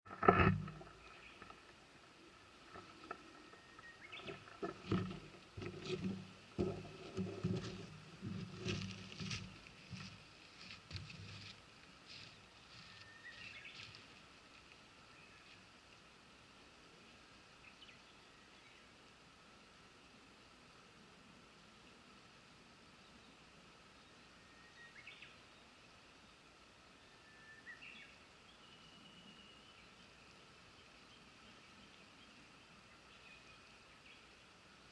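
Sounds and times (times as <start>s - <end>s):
low rumbles: 0.0s - 10.3s
river babbling: 0.1s - 10.8s, 13.6s - 28.6s, 29.2s - 34.9s.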